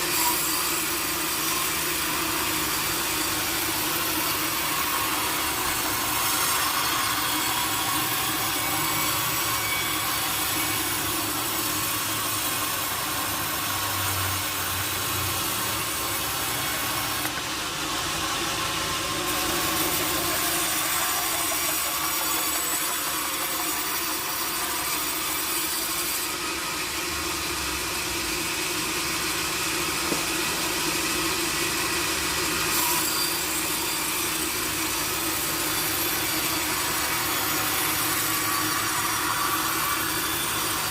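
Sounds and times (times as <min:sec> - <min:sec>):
saw cutting through wood: 0:00.0 - 0:40.9.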